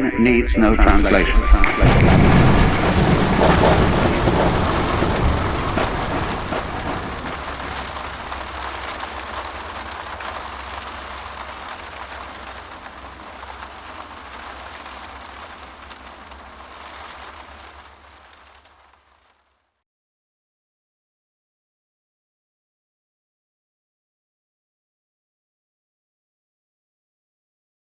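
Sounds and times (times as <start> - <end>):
low thunder rumble: 0.8 - 8.5
steady rain: 0.8 - 19.2.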